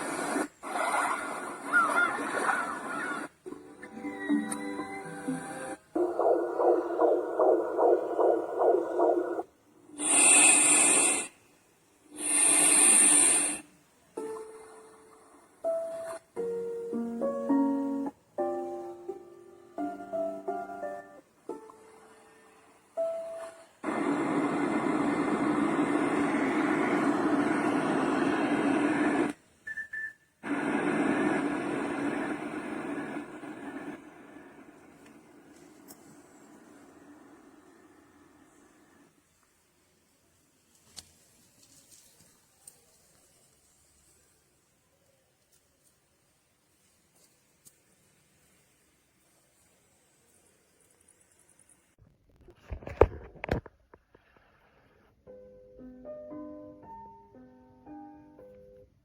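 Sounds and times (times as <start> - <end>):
hissing white noise: 0.0 - 1.8, 5.0 - 18.6, 19.2 - 29.6, 30.4 - 52.0
pulsing sound: 5.2 - 11.1.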